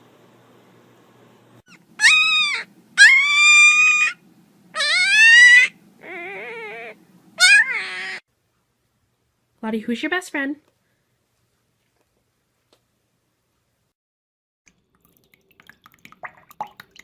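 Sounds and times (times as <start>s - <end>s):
pet animal high-pitched cries: 1.7s - 8.2s.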